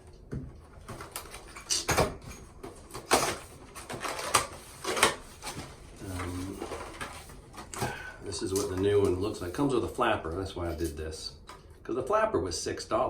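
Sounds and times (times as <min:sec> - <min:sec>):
handling packaging: 0:00.7 - 0:10.9.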